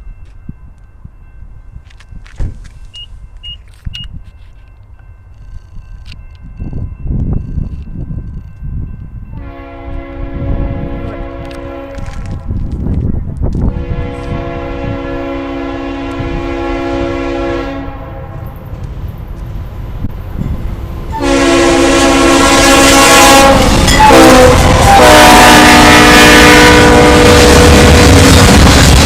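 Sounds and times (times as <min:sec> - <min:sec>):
low train rumble: 0:00.0 - 0:29.0
locomotive air horn blasts: 0:09.4 - 0:12.4, 0:13.7 - 0:18.5, 0:21.1 - 0:28.4.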